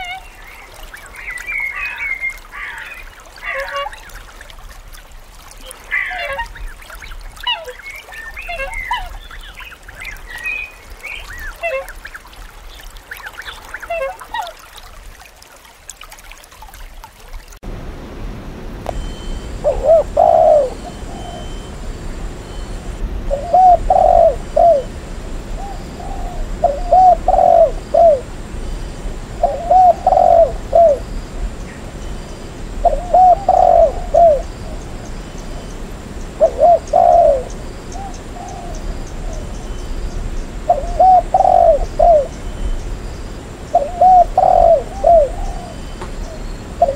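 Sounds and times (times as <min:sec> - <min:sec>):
dove cooing: 0:19.4 - 0:21.9, 0:23.3 - 0:24.9, 0:25.6 - 0:28.3, 0:29.4 - 0:31.0, 0:32.8 - 0:35.0, 0:36.4 - 0:38.8, 0:40.7 - 0:42.3, 0:43.7 - 0:45.8.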